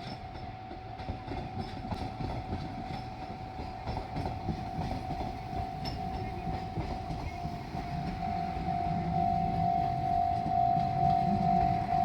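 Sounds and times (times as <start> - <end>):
train wheels clattering: 0.0 - 12.0
level crossing alarm: 7.0 - 12.0.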